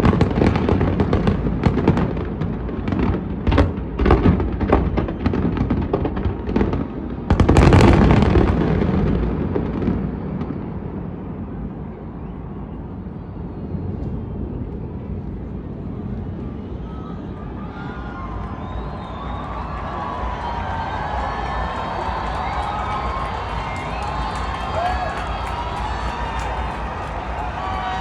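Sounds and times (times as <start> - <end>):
fireworks exploding: 0.0 - 11.7, 18.6 - 28.0.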